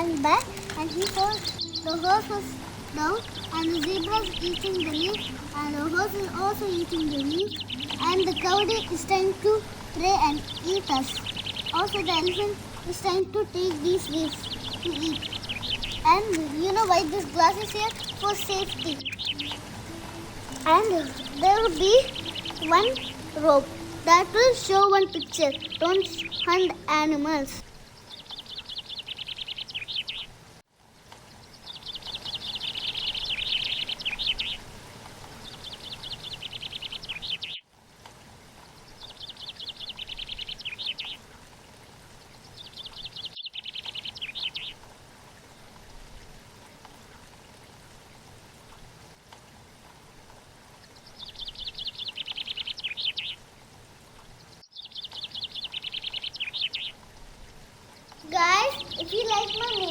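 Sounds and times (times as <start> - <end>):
bird singing high trills: 0.0 - 30.3, 58.2 - 59.9.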